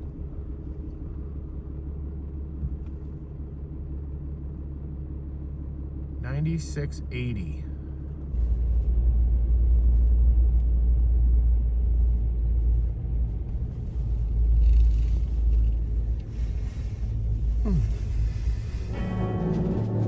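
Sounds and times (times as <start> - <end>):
truck engine rumbling: 8.5 - 20.0.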